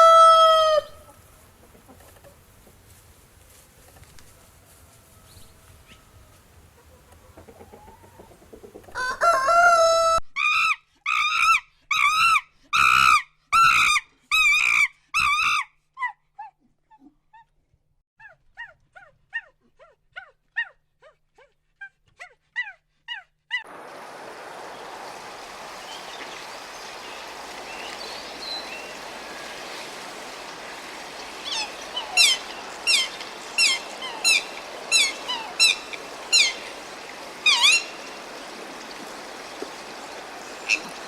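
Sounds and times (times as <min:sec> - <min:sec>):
chicken calling: 0:00.0 - 0:02.9, 0:03.7 - 0:10.2, 0:23.6 - 0:41.0.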